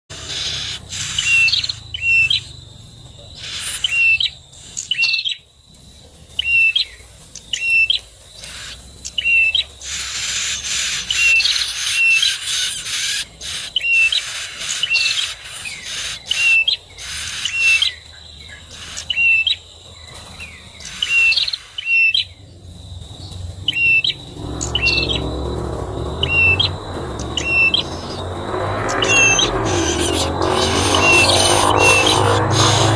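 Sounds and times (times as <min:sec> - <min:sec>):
bird chirping: 0:00.1 - 0:32.9
low rumble: 0:22.4 - 0:32.9.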